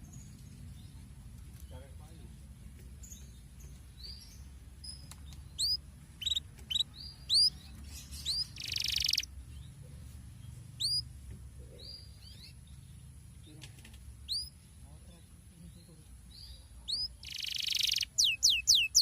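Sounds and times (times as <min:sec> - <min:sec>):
canary chirps: 0:03.0 - 0:19.0
buzzy canary trill: 0:05.5 - 0:09.3, 0:10.7 - 0:11.1, 0:14.2 - 0:14.6, 0:16.8 - 0:19.0.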